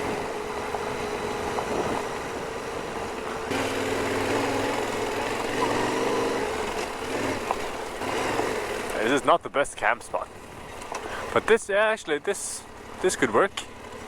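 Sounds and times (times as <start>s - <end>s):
wind noise: 0.0s - 3.6s
gravel road noise: 0.0s - 14.0s
motorcycle engine at low speed: 0.0s - 14.0s.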